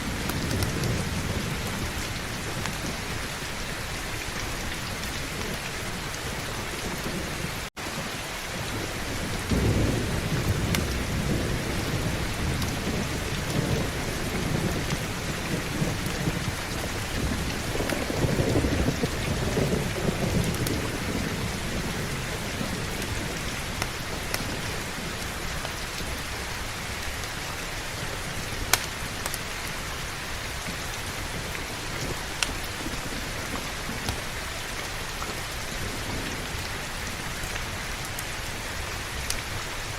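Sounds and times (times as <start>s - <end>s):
rolling thunder: 0.0s - 3.6s, 4.5s - 25.5s
heavy rain: 0.0s - 39.9s.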